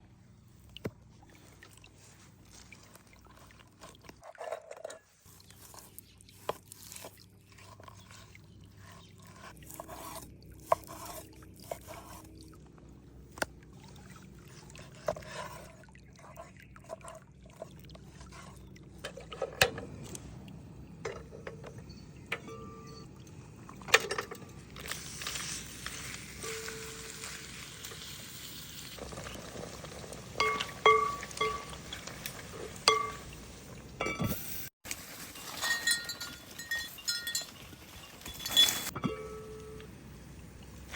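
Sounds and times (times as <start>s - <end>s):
steady cooking hiss: 24.9s - 30.4s
utensils and cookware clinking: 26.4s - 28.1s, 30.3s - 33.3s, 34.0s - 39.9s.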